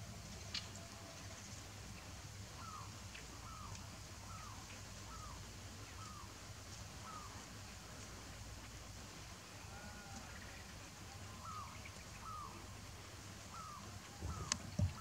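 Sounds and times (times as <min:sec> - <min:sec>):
bird calling: 0:11.2 - 0:12.8, 0:13.4 - 0:15.0.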